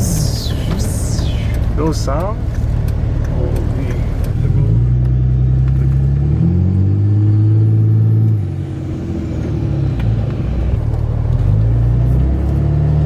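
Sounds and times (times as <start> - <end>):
turbo whistle: 0.0 - 1.6
diesel engine accelerating: 0.0 - 13.0.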